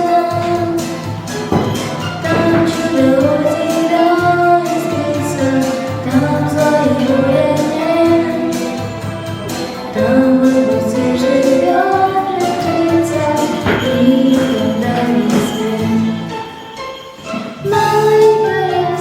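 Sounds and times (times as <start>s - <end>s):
instrumental backing track: 0.0s - 19.0s
person singing: 1.6s - 16.3s.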